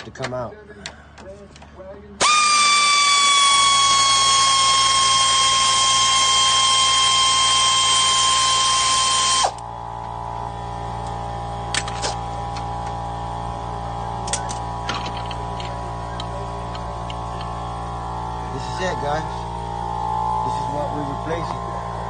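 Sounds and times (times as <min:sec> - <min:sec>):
power tool motor whining: 0:02.2 - 0:13.0.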